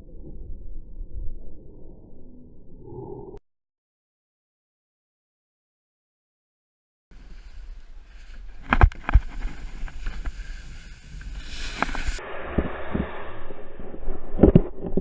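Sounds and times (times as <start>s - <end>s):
canoe hull sliding down a bank: 7.2s - 12.2s
steady rushing noise: 7.2s - 15.0s.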